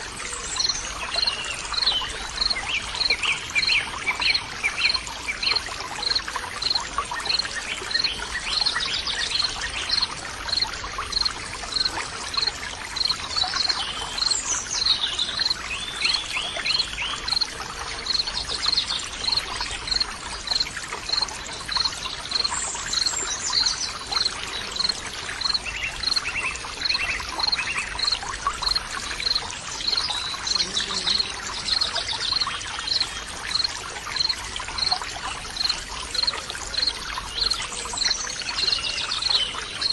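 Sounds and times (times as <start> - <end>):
water trickling: 0.0 - 39.9
birds chirping: 24.5 - 34.9.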